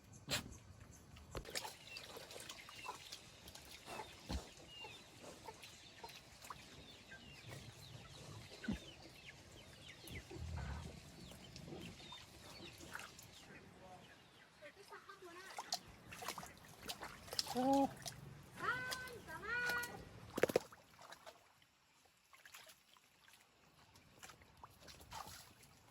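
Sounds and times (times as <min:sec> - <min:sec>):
farmyard birds chirping and clucking: 0:01.4 - 0:14.6.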